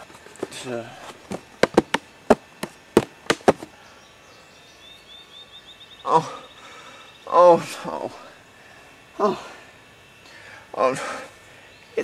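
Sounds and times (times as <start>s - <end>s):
sharp knocks on wood: 1.3s - 3.7s.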